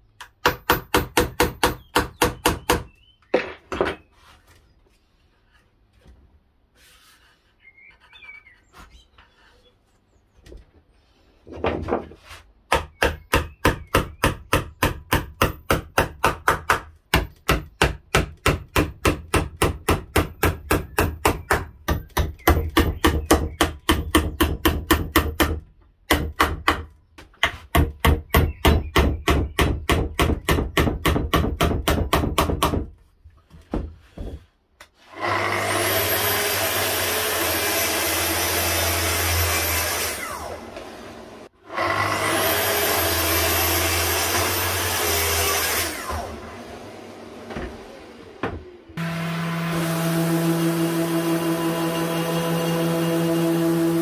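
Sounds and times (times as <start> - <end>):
power tool whining: 35.1 - 54.0.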